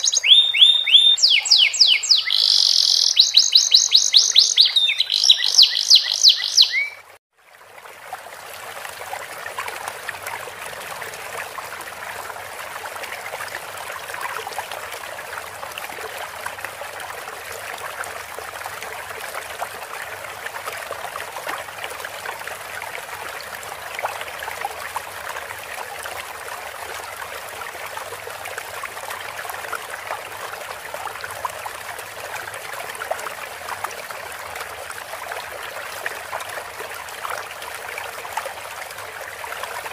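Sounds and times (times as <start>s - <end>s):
canary singing: 0.0s - 7.0s
trickling water: 0.0s - 39.9s.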